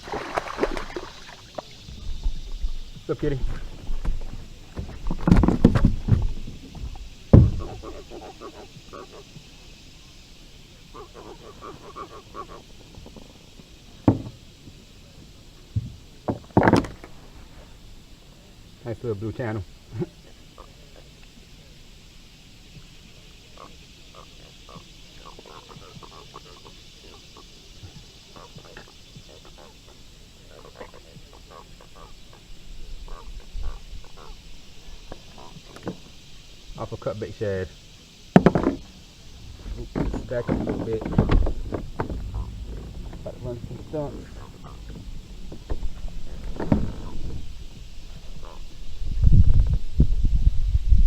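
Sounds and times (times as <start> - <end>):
quick croaking pulses: 0.0 - 15.0, 23.1 - 49.8
high insect buzz: 0.0 - 51.0
knocks on a kayak: 4.0 - 7.8, 14.0 - 14.4, 15.8 - 17.0, 38.3 - 38.9.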